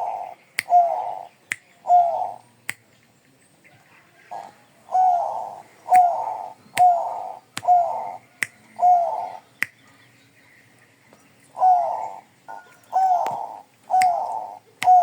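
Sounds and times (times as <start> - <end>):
dove cooing: 0.0 - 2.4, 4.2 - 9.5, 11.6 - 15.0.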